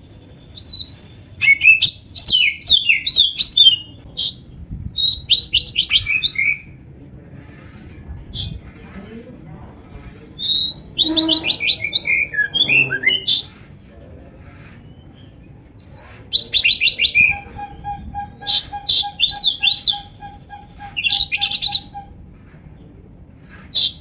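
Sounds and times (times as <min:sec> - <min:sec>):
bird singing whistles and trills: 0:00.5 - 0:04.4, 0:05.0 - 0:06.6, 0:10.4 - 0:13.5, 0:14.9 - 0:22.0.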